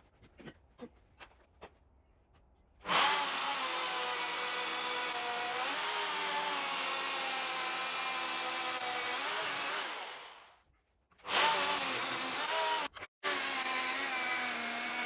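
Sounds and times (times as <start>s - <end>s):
electric power tool running: 11.3s - 15.0s.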